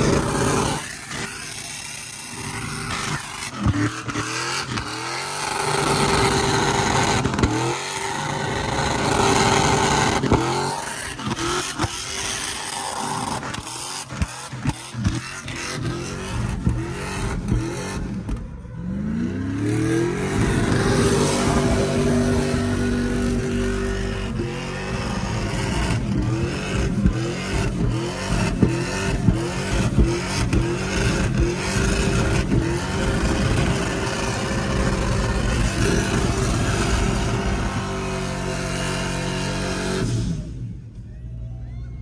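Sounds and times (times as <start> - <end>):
truck engine revving: 0.0 - 41.4
engine pops: 20.3 - 38.1.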